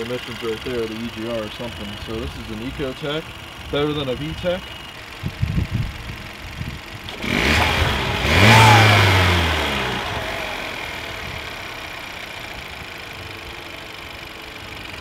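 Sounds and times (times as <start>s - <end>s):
car engine revving: 6.8s - 14.1s.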